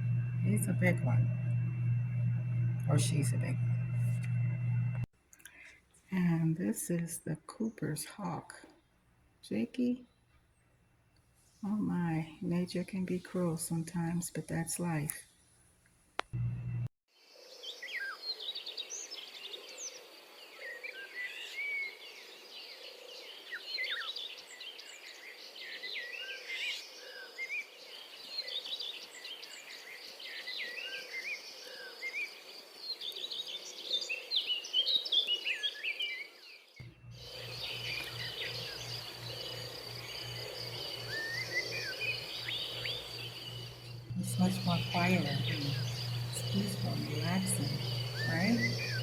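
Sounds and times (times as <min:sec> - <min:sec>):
low pulsing hum: 0:00.0 - 0:05.1, 0:16.3 - 0:16.9, 0:36.8 - 0:49.0
small birds chirping: 0:17.2 - 0:49.0.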